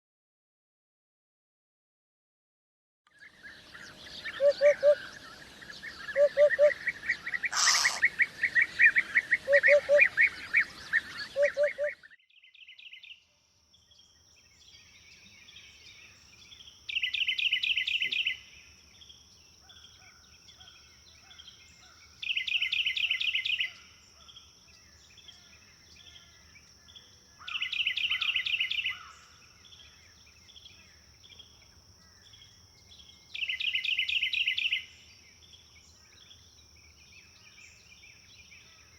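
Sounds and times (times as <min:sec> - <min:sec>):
birds chirping: 0:03.2 - 0:12.2
hoopoe calling: 0:04.2 - 0:05.2, 0:06.0 - 0:08.2, 0:09.1 - 0:10.4, 0:11.2 - 0:12.0
high insect-like buzz: 0:07.5 - 0:08.1.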